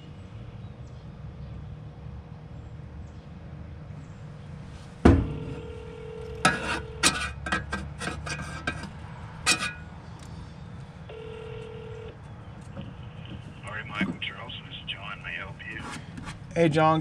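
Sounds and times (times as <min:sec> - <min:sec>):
telephone ringback tone: 0:05.3 - 0:07.1, 0:11.1 - 0:12.2.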